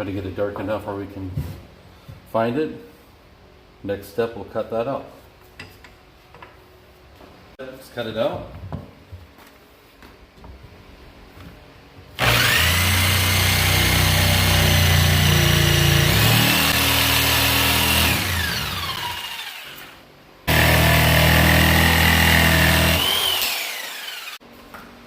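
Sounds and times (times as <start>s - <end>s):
electric saw cutting wood: 12.2s - 24.4s.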